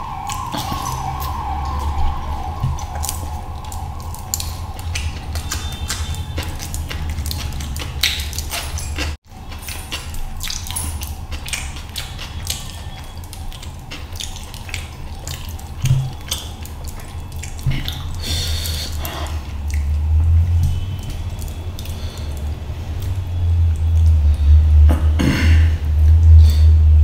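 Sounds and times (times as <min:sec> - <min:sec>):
squelching food between fingers: 0:00.0 - 0:24.6
wet chewing and lip-smacking: 0:00.0 - 0:25.1
steady low hum: 0:00.0 - 0:27.0.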